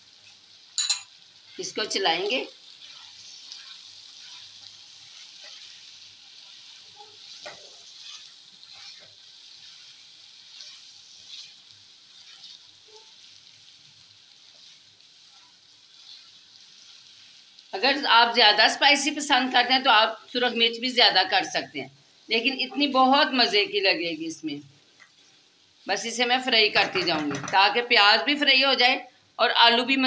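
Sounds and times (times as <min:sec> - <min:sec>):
potatoes sizzling in a pan: 0:00.0 - 0:30.0
spatula scraping a pan: 0:02.6 - 0:17.6.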